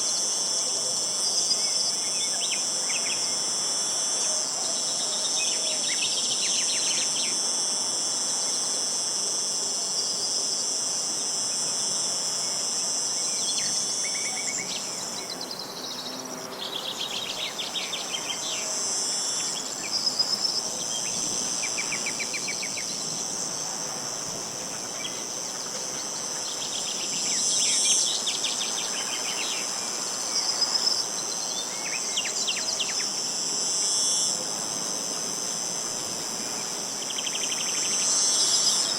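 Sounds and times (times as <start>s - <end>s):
insects droning: 0.0s - 38.9s
songbird singing: 1.2s - 3.6s, 4.4s - 7.5s, 12.4s - 23.2s, 24.6s - 33.2s, 36.5s - 38.9s.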